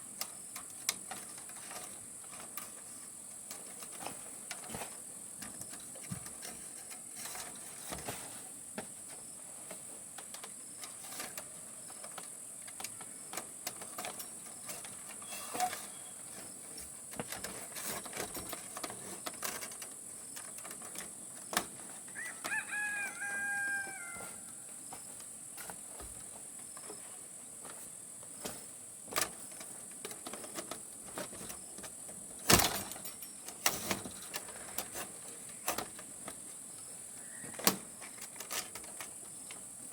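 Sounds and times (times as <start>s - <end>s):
rooster crowing: 22.1s - 24.5s.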